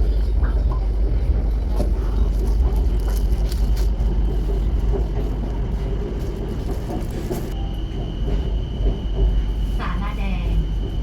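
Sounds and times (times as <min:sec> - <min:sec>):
vehicle low rumble: 0:00.0 - 0:07.6.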